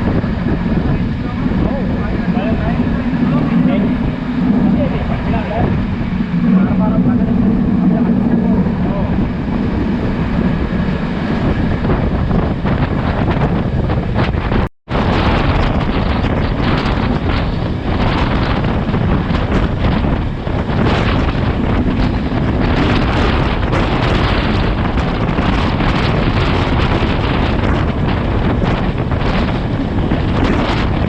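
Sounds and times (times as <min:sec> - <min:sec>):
train running noise: 0:00.0 - 0:31.0
wind buffeting microphone: 0:00.0 - 0:31.0.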